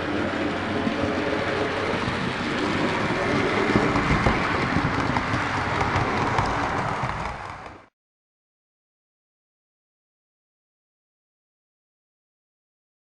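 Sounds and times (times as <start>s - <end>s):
model train rumbling on track: 0.0s - 7.9s
wheels clicking on rails: 0.0s - 7.9s.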